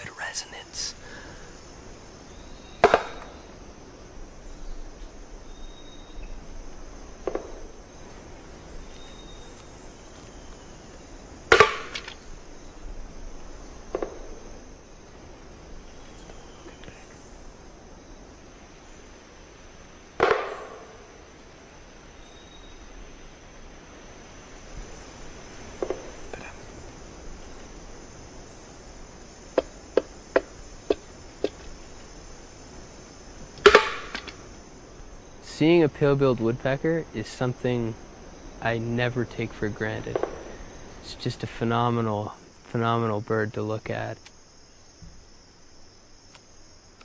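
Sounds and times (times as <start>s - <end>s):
high insect buzz: 0.0s - 47.0s
woodpecker double knocks: 29.5s - 31.8s.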